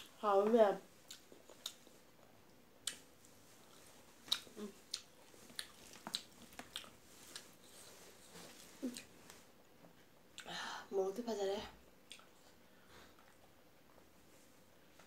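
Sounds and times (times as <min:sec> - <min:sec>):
person chewing rice: 0:01.0 - 0:09.5, 0:12.1 - 0:14.1
soft mouth clicks and smacks: 0:01.1 - 0:03.0, 0:03.6 - 0:07.5, 0:12.0 - 0:12.5.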